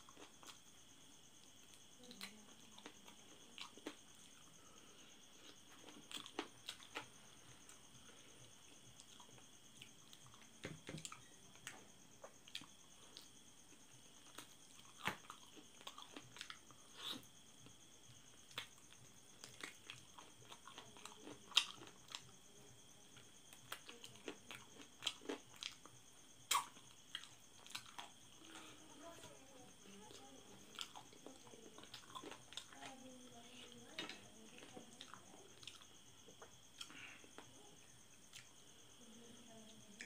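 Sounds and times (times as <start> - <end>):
man chewing and crunching food: 0.0 - 0.8, 1.4 - 22.4, 23.1 - 28.8, 30.6 - 32.8, 34.0 - 38.6.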